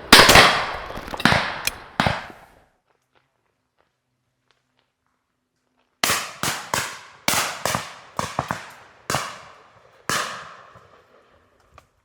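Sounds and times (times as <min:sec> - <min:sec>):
shotgun shots echoing: 0:00.0 - 0:02.4.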